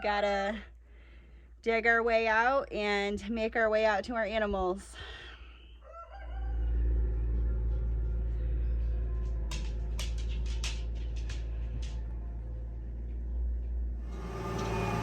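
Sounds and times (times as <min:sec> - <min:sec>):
tractor engine rumbling: 0:06.6 - 0:15.0.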